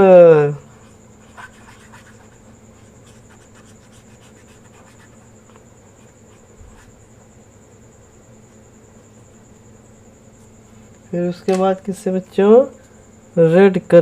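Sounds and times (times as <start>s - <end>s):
colouring strokes on paper: 0.8s - 5.3s.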